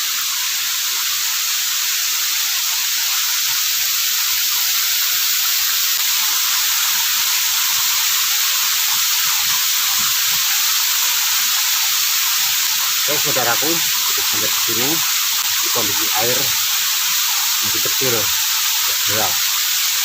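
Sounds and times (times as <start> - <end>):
waterfall rushing: 5.3 - 20.0.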